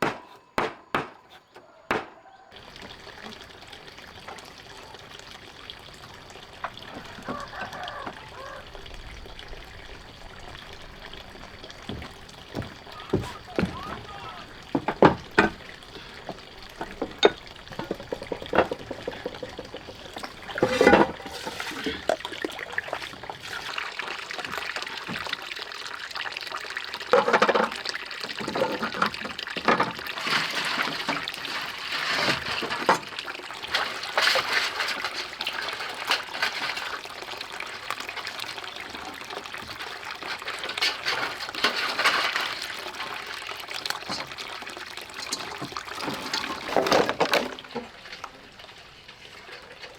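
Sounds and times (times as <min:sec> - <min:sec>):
sharp knocks: 0:00.0 - 0:01.3, 0:01.9 - 0:02.2
water splashing and trickling: 0:01.4 - 0:49.9.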